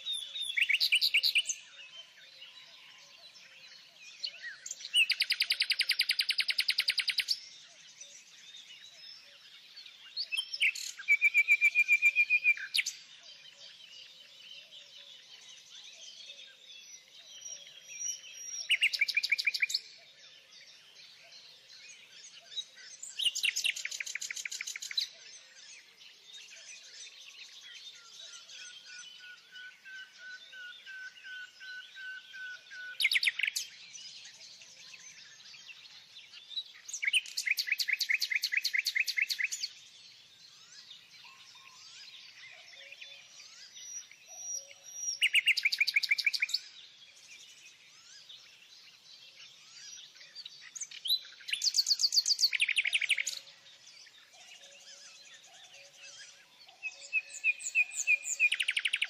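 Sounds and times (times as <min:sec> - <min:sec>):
birds chirping: 0:20.7 - 0:59.0.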